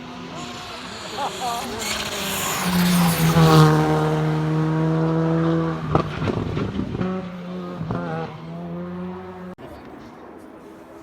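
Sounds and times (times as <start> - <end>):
gear change: 0.0 - 7.1
race car engine high-revving: 0.0 - 9.5.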